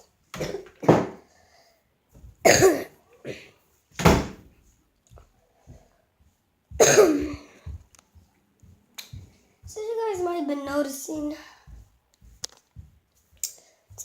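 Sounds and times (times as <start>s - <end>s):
person coughing: 2.4s - 3.5s, 6.8s - 7.6s.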